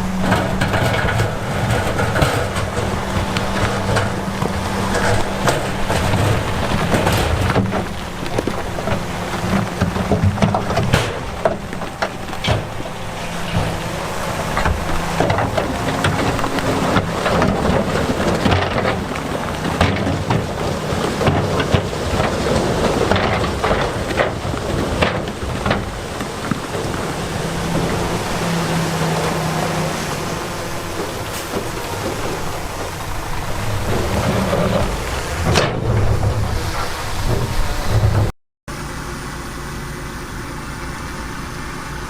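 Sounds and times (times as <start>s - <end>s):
stones tumbling and grinding: 0.0s - 38.3s
diesel machinery rumbling: 0.0s - 42.0s.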